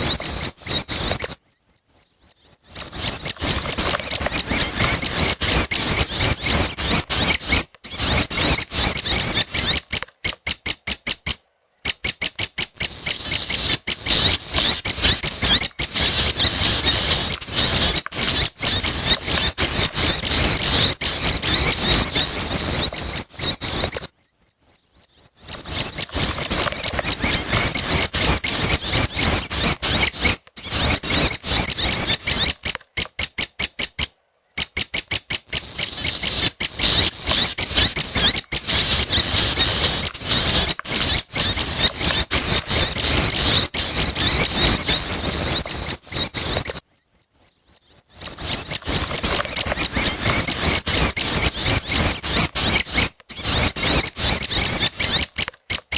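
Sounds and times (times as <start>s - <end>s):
bird chicks chattering: 0.0s - 55.9s.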